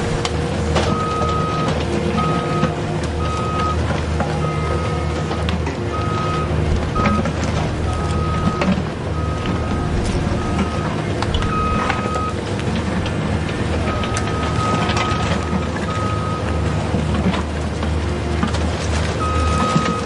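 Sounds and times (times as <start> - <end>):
electronic warning beep: 0.9 - 3.8, 4.4 - 5.2, 5.9 - 12.4, 13.9 - 16.8, 19.2 - 20.0.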